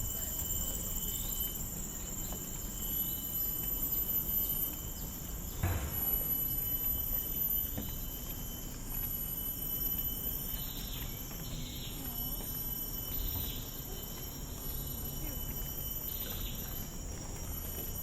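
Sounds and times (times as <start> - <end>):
footsteps on trail: 0.0 - 18.0
insects droning: 0.0 - 18.0.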